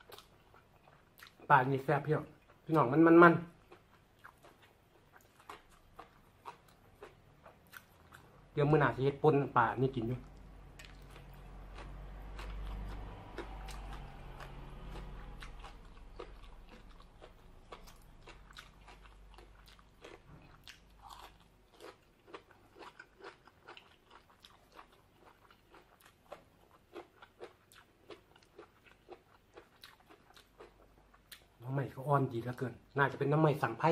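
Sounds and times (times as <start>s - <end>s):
crunchy food chewing: 3.5s - 8.5s, 9.8s - 31.6s
low rumble: 10.2s - 18.5s.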